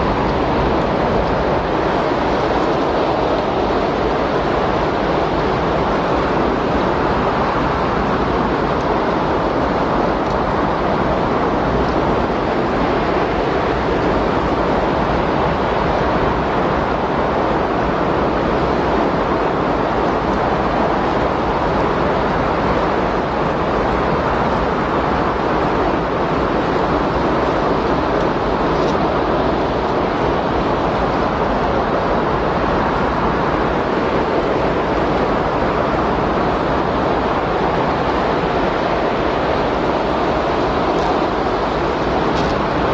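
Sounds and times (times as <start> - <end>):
steady rush of wind: 0.0 - 42.9.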